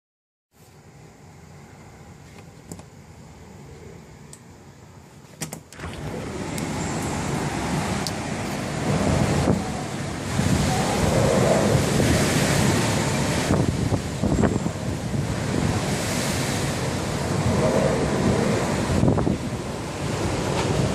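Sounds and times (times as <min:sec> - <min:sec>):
wind buffeting microphone: 0:05.8 - 0:20.9.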